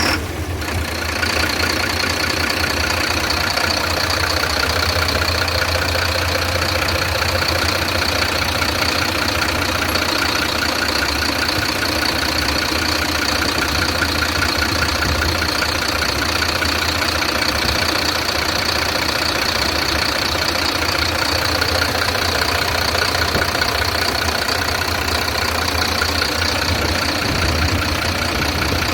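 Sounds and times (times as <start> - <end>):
truck diesel engine idling: 0.0 - 28.9.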